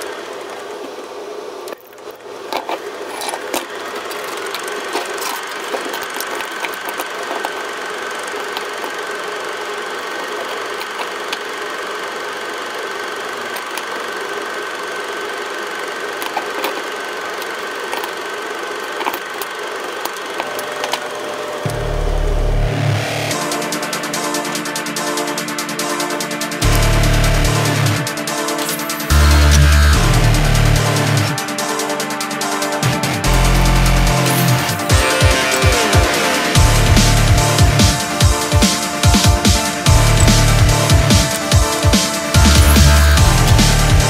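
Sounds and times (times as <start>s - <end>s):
crackles and clicks: 0.0s - 14.4s, 16.1s - 24.4s
film projector whirring clatter: 0.0s - 44.0s.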